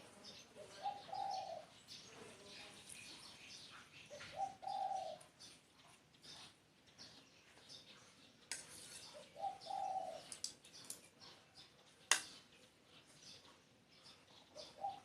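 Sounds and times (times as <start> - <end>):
small birds chirping: 0.0 - 15.0
dove cooing: 0.6 - 1.7, 4.1 - 5.4, 9.1 - 10.4, 14.4 - 15.0.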